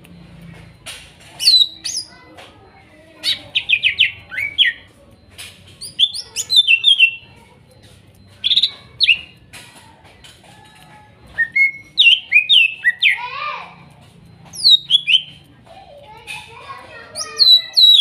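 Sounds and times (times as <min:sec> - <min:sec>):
bird singing whistled notes: 0:01.4 - 0:02.1, 0:05.8 - 0:07.2, 0:11.4 - 0:13.3, 0:14.5 - 0:15.4, 0:17.2 - 0:18.0.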